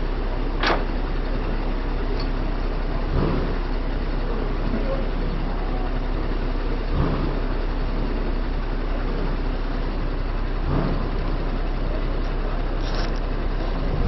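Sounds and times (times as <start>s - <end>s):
truck diesel engine idling: 0.0s - 14.0s.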